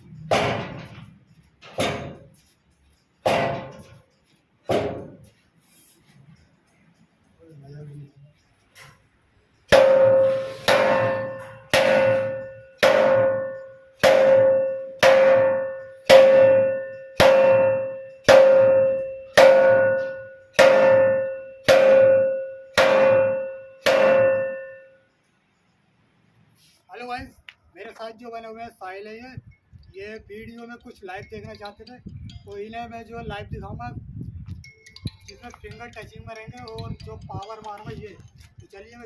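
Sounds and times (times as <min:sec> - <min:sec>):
ringing percussive strikes: 0:09.5 - 0:25.7, 0:34.6 - 0:38.1.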